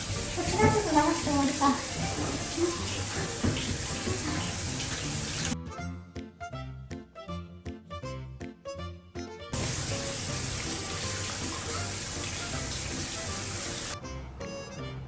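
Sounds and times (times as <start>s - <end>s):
water running: 0.0s - 5.6s, 9.5s - 14.0s
background music: 0.1s - 15.0s.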